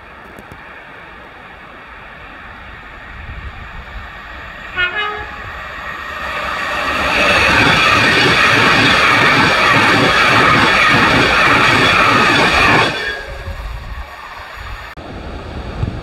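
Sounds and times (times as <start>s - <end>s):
train passing at speed: 0.0s - 16.0s
train horn: 4.7s - 5.5s, 12.8s - 13.7s.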